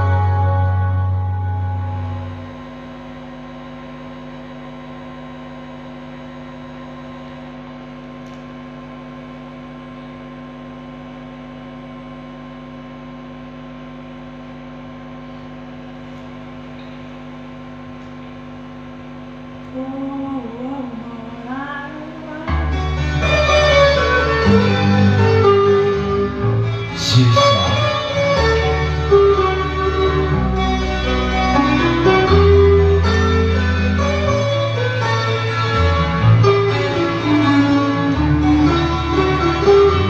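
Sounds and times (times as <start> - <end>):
gliding pitch melody: 0.0 - 2.7
electrical hum: 0.0 - 40.0.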